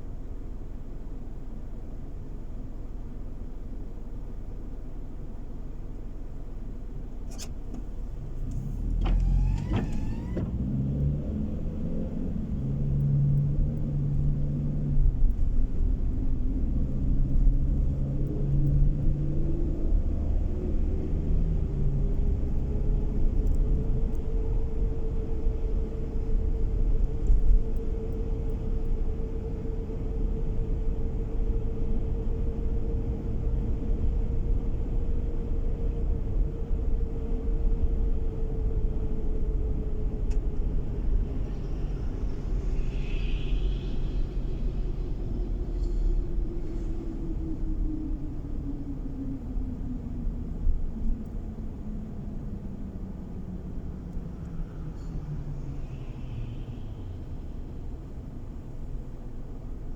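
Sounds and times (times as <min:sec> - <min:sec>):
car engine and road rumble: 0:00.0 - 0:59.9
click: 0:07.3 - 0:10.6, 0:23.4 - 0:24.2, 0:27.0 - 0:29.0.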